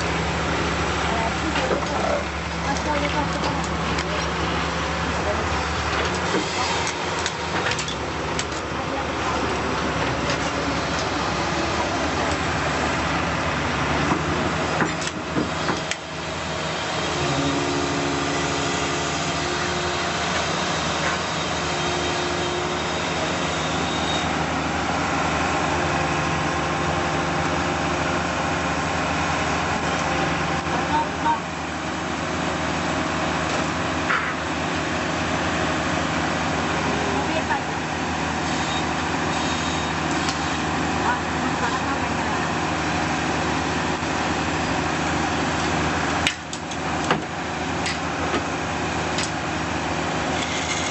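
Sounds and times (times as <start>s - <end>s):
heavy machine engine running: 0.0s - 50.9s.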